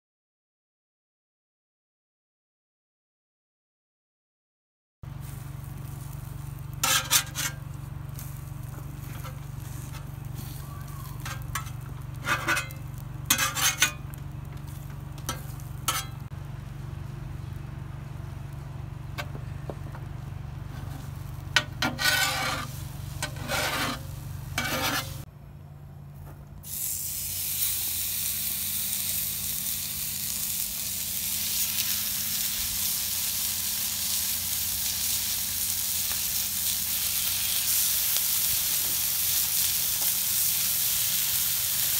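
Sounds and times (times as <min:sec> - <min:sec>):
steady low hum: 0:05.0 - 0:37.8
meat sizzling on griddle: 0:05.1 - 0:16.3, 0:20.9 - 0:25.3, 0:26.6 - 0:41.9
metal spatula scraping griddle: 0:06.7 - 0:16.3, 0:20.6 - 0:25.3.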